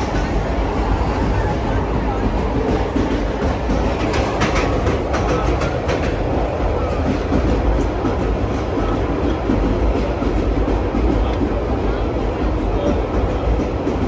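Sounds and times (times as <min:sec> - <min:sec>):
train rumble inside compartment: 0:00.0 - 0:14.0
wheel and carriage clicks and rattles: 0:02.6 - 0:06.3.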